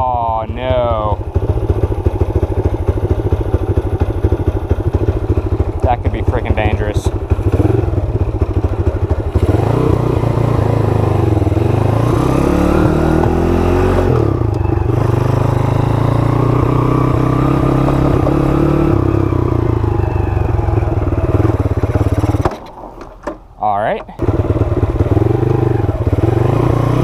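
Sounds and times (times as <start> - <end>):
mini bike engine revving: 1.3 - 22.6, 24.2 - 27.0.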